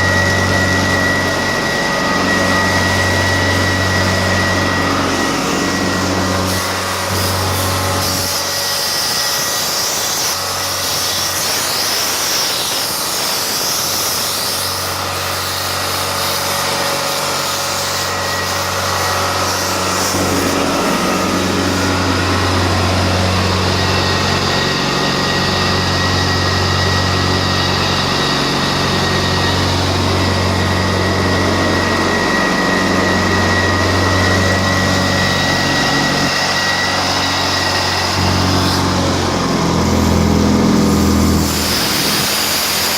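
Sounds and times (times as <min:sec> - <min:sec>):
carpet cleaning machine engine drone: 0:00.0 - 0:42.9
low hum: 0:18.4 - 0:42.7.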